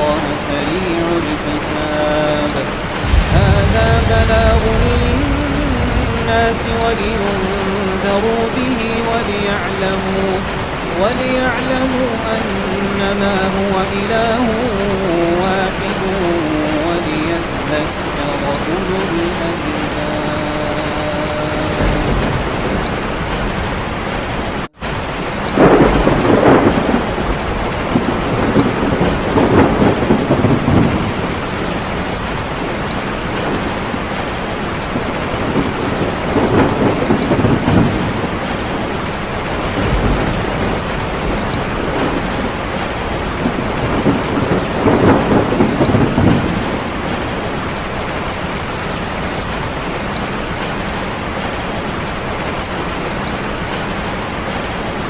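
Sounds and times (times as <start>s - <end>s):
heavy rain: 0.0s - 55.0s
thunder rolling: 2.1s - 9.3s, 20.4s - 52.0s.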